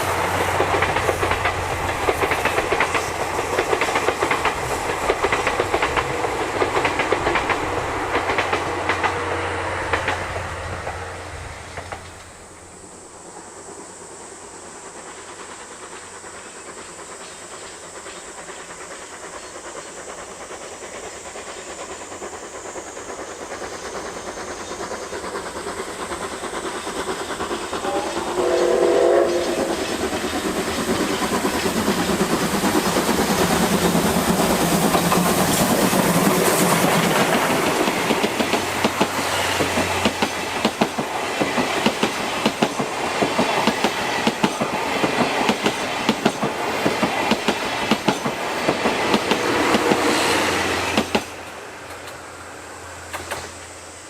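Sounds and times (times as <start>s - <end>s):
train coaches clattering over rail joints: 0.0s - 12.5s, 15.3s - 50.2s
steam locomotive exhaust chuffs: 0.0s - 54.0s
steam whistle blast: 27.7s - 30.2s.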